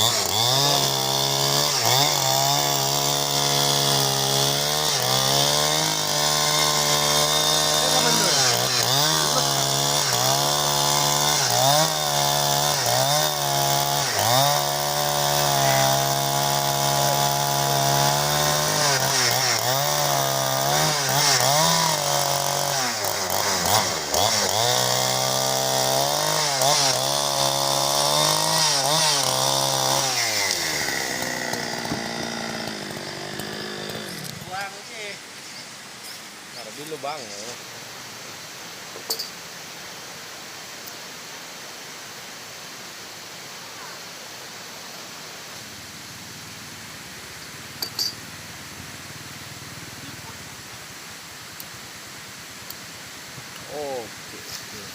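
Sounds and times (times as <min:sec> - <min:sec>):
chainsaw cutting wood: 0:00.0 - 0:37.6, 0:47.6 - 0:48.4.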